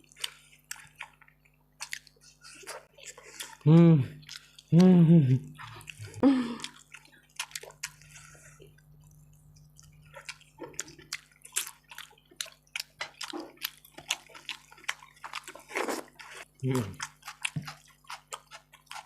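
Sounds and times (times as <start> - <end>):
low electrical hum: 0.0 - 19.0
wet chewing and mouth smacking: 0.0 - 19.0.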